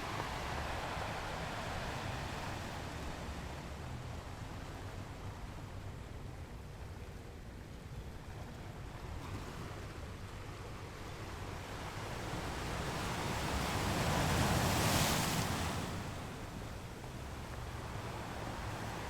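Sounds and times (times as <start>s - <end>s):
ocean surf: 0.0s - 3.7s, 11.6s - 19.0s.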